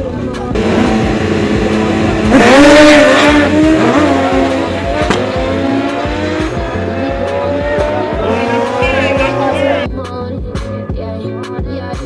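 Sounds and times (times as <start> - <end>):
motorcycle engine revving: 0.4 - 9.9.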